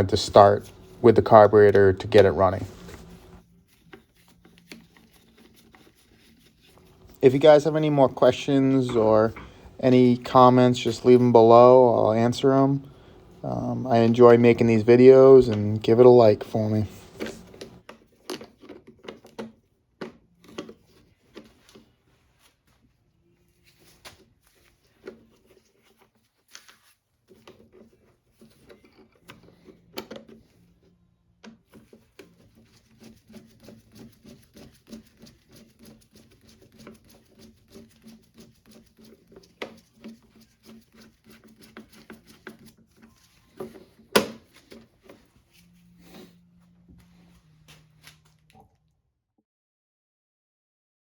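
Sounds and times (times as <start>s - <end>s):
rapid irregular clicking and tapping: 31.4s - 45.2s.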